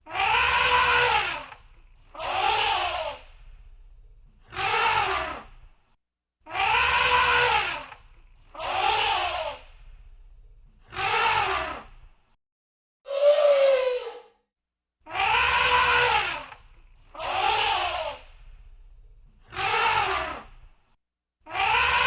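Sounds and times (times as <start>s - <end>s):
elephant trumpeting: 0.1s - 1.5s, 6.6s - 7.9s, 15.2s - 16.5s.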